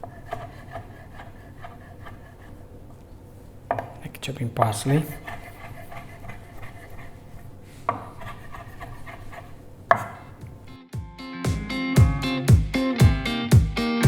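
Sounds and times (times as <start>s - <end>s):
knife chopping on cutting board: 0.0s - 2.5s, 3.7s - 4.0s, 7.8s - 10.7s
guitar music: 10.7s - 14.0s.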